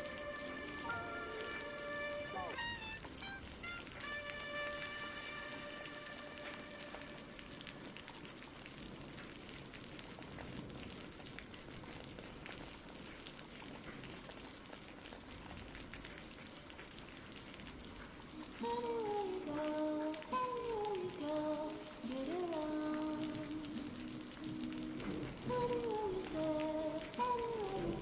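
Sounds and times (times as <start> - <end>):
person singing: 0.0 - 2.7, 18.4 - 28.0
steady rain: 0.0 - 28.0.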